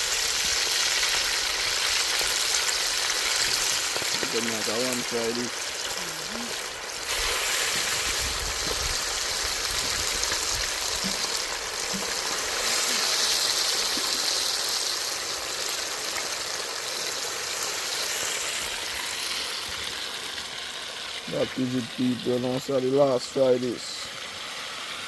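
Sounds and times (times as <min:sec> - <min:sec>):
meat sizzling in hot oil: 0:00.0 - 0:25.0.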